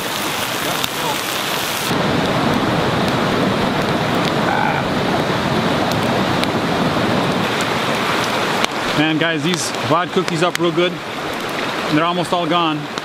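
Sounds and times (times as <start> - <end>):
sausages sizzling in skillet: 0.0 - 2.0
wood fire crackling: 0.0 - 13.0.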